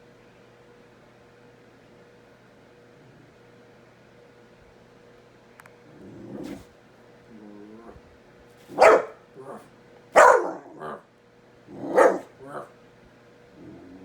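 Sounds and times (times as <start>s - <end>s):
dog barking: 8.7s - 11.0s, 11.8s - 12.7s.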